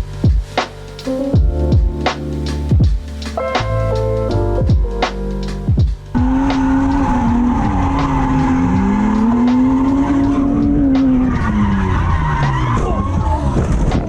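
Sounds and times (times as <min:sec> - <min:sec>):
car engine revving: 0:06.1 - 0:13.8.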